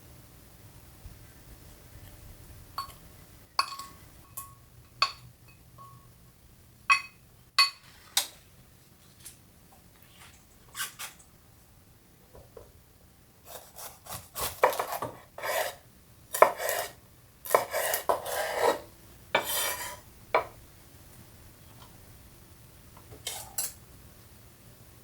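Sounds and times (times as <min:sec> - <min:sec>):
kitchen scraping and rubbing: 0:10.0 - 0:11.2, 0:13.5 - 0:15.8, 0:16.4 - 0:20.0, 0:23.2 - 0:23.8.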